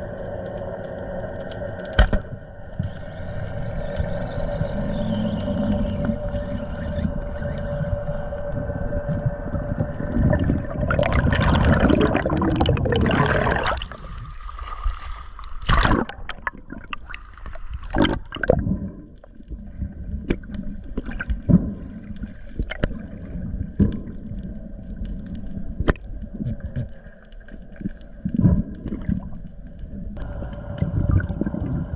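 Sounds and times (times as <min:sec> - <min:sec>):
underwater gurgling: 0:02.5 - 0:31.9
exhaled air bubbles rushing: 0:03.1 - 0:24.8, 0:27.7 - 0:31.9
steady low hum: 0:30.1 - 0:31.9.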